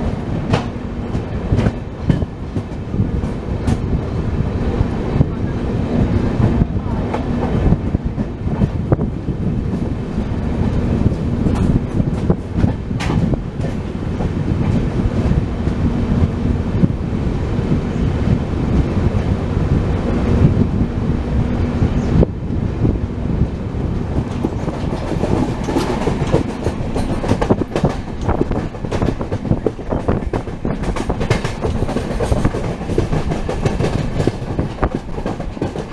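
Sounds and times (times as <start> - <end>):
train wheels rumbling on rail: 0.0 - 35.9
clicks over rail joints: 11.0 - 14.8, 24.2 - 35.9.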